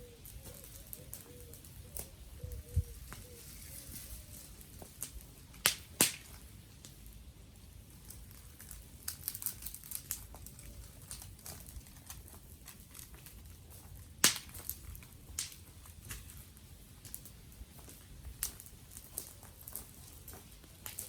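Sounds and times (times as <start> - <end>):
wood fire crackling: 0.0 - 21.0
loud fire snap: 4.6 - 7.2, 7.9 - 21.0.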